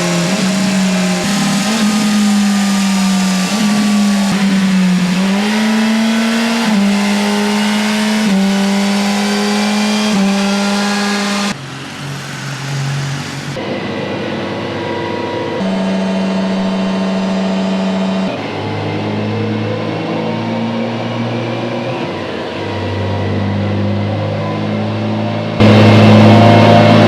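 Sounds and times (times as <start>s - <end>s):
motorcycle engine running: 0.0s - 13.6s, 25.6s - 27.0s.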